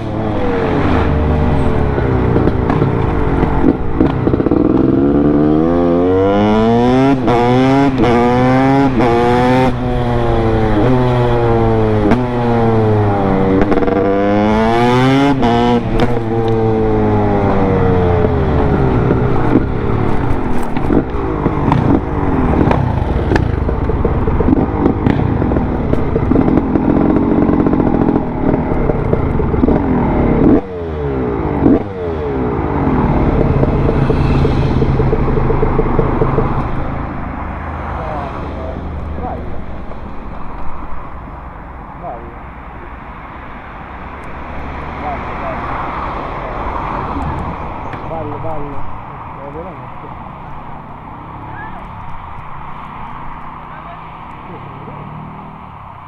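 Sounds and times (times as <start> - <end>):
two-stroke engine revving: 0.0 - 40.1.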